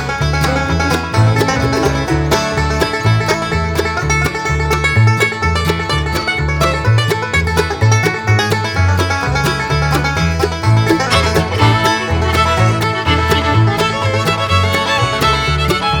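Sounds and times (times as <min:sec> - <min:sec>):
upbeat plucked-string music: 0:00.0 - 0:16.0.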